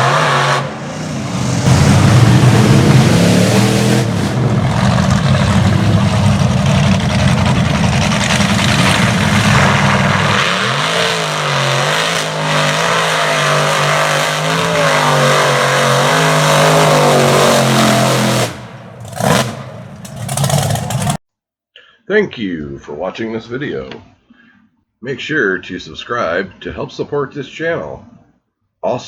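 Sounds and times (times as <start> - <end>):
heavy rushing noise: 0.0 - 21.2
truck engine running at high revs: 0.0 - 21.2.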